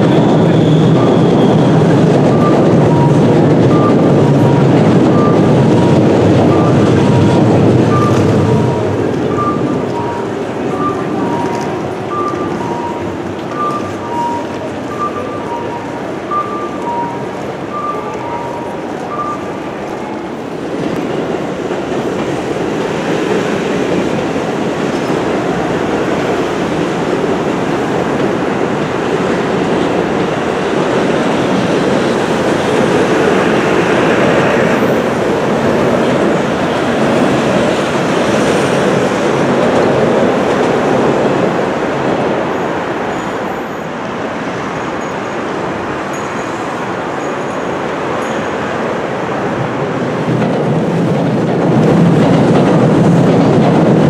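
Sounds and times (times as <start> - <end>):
city background noise: 0.0 - 54.0
electric train rumbling: 0.0 - 54.0
two-pitch electronic beeps: 0.4 - 19.7.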